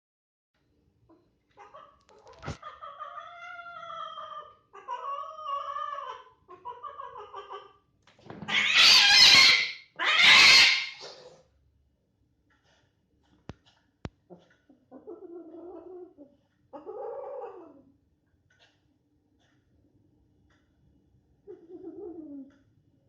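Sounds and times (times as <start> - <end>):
cat yowling: 2.5 - 7.7, 8.5 - 11.2
cat hissing: 8.5 - 11.5.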